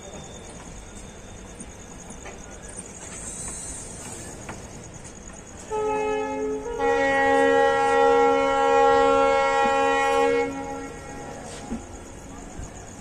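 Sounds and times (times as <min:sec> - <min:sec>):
train rumbling: 0:00.0 - 0:13.0
locomotive horn chord: 0:05.7 - 0:11.7.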